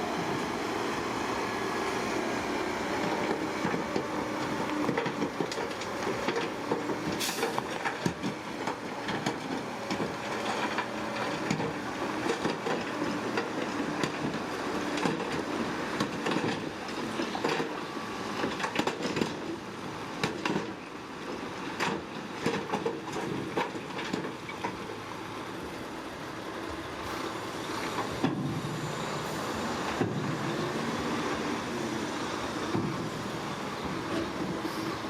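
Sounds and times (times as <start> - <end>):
diesel engine running: 23.3 - 35.0.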